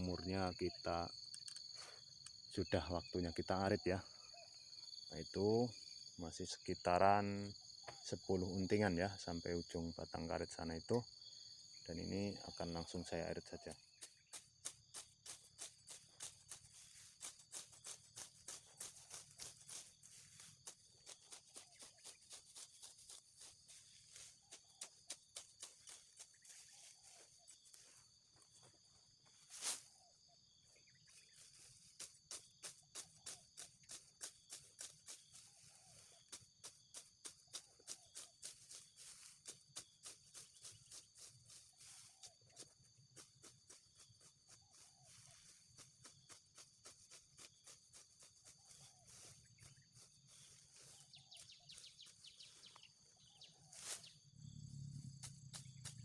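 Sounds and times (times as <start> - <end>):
high drone of insects: 0.0 - 56.0
sickle cutting grass: 14.3 - 28.1, 29.3 - 29.9, 53.6 - 54.2.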